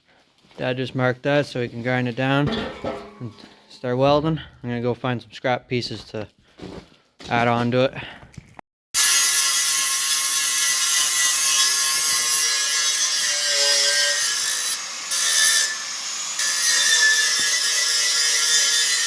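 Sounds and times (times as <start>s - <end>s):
angle grinder grinding steel: 9.0s - 19.0s.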